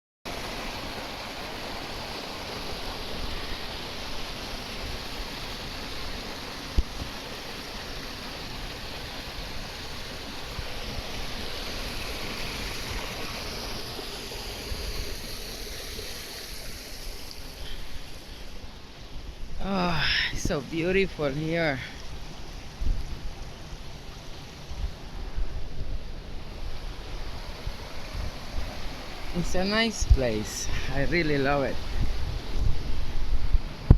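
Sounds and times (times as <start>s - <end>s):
waterfall roaring: 26.1s - 32.5s.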